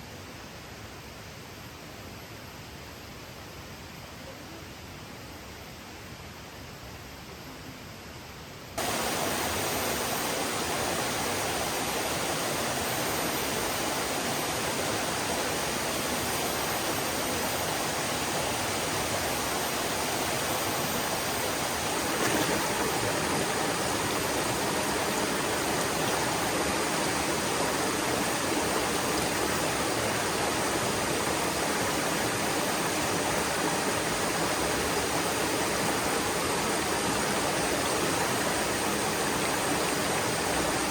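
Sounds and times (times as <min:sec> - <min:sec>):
rushing water: 0:08.8 - 0:40.9.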